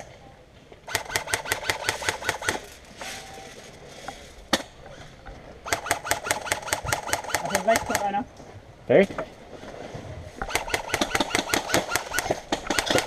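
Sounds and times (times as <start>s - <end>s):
airsoft gun firing bursts: 0.9s - 2.7s, 5.6s - 8.2s, 10.4s - 13.0s.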